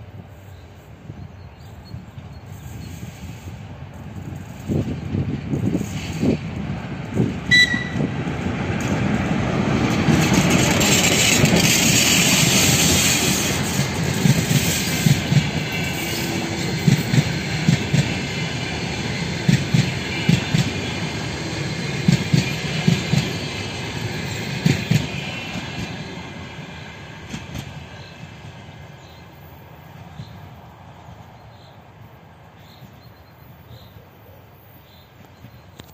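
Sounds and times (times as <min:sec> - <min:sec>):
diesel locomotive engine: 0:00.0 - 0:35.9
train wheels clacking over rail joints: 0:04.0 - 0:26.0
brief high tone: 0:07.5 - 0:08.1.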